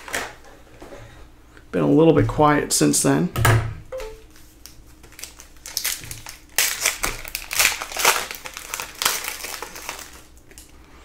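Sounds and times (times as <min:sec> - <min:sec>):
plastic packaging crinkling: 0:04.3 - 0:10.9.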